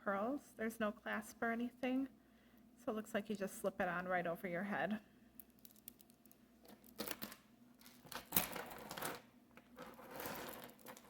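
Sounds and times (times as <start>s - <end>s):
beads and chains clicking: 5.4s - 9.2s.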